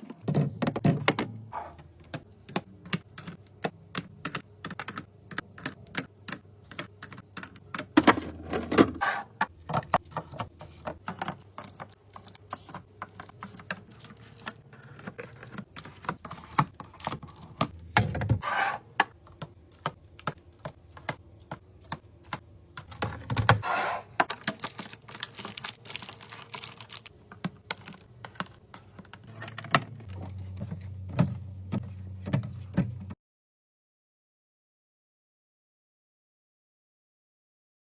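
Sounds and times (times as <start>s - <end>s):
packaging handling noise: 24.3s - 33.1s.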